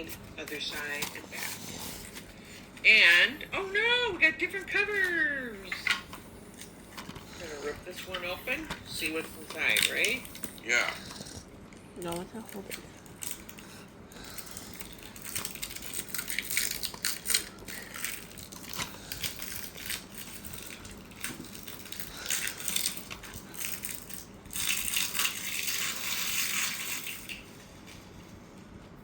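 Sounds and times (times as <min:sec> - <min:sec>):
plastic wrap crinkling and tearing: 0:12.4 - 0:27.8.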